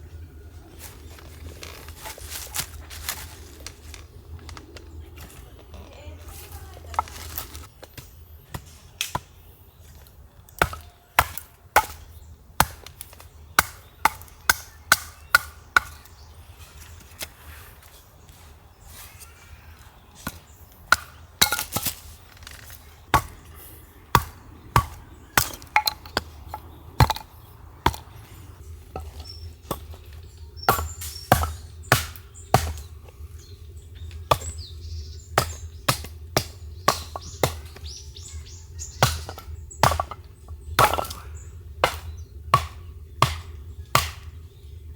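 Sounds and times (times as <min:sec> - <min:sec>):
firewood being chopped: 0:00.8 - 0:05.8, 0:06.4 - 0:18.4, 0:20.2 - 0:44.6.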